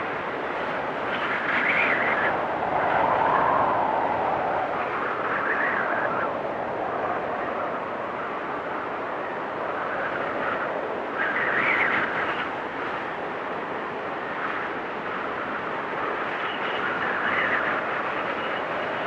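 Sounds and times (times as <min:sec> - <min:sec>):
storm wind gusting: 0:00.0 - 0:19.0.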